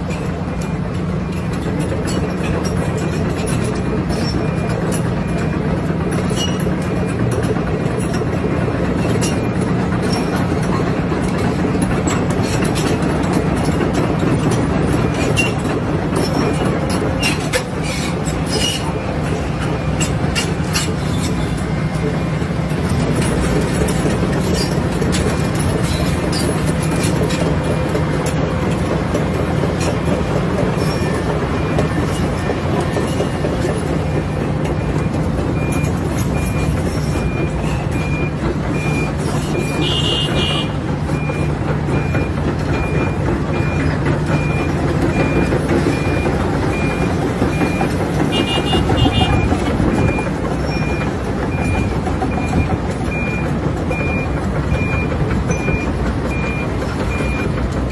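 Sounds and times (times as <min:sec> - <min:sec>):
excavator engine running: 0:00.0 - 0:57.9
travel alarm beeping: 0:33.8 - 0:57.6.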